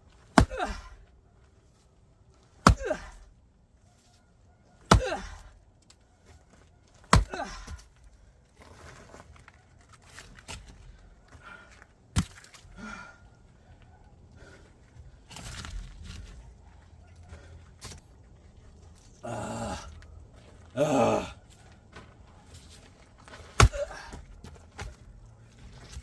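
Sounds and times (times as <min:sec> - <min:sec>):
axe chopping wood: 0:00.3 - 0:01.0, 0:02.6 - 0:03.2, 0:04.9 - 0:05.5, 0:07.0 - 0:07.9, 0:12.2 - 0:12.5, 0:23.4 - 0:24.2
wood cracking: 0:23.3 - 0:24.9.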